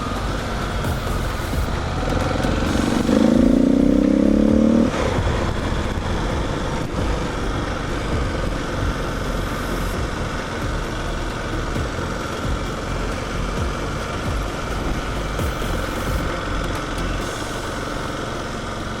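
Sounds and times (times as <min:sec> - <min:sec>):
motorcycle engine running: 0:00.0 - 0:19.0
rising tone: 0:00.0 - 0:19.0.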